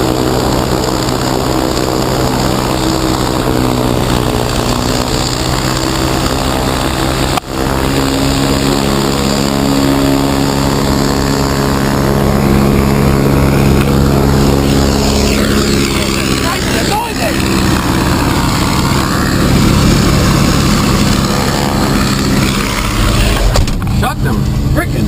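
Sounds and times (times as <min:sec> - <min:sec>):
propeller aircraft engine droning: 0:00.0 - 0:25.0.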